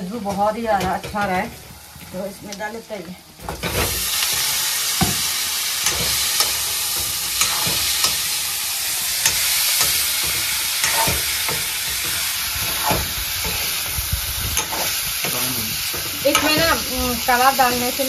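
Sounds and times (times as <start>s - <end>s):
meat sizzling in oil: 0.0s - 18.0s
spoon scraping a metal pan: 3.5s - 17.0s.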